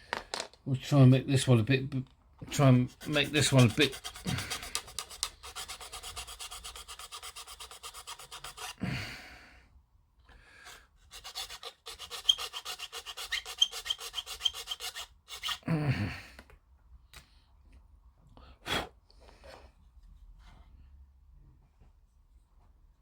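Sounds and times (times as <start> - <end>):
file rasping plastic: 2.8 - 8.8, 10.6 - 15.6.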